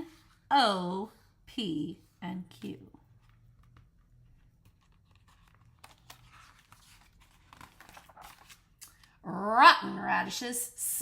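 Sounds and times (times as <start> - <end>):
paper rustling: 3.1 - 9.2.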